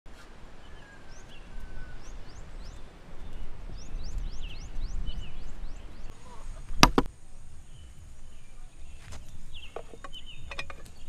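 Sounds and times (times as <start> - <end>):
birds chirping: 0.1 - 11.0
thin whistled bird notes: 0.2 - 6.8.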